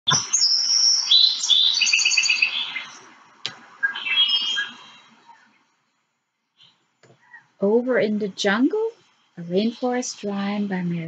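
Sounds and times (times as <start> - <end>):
birdsong whistles and trills: 0.1 - 3.1, 3.8 - 5.6.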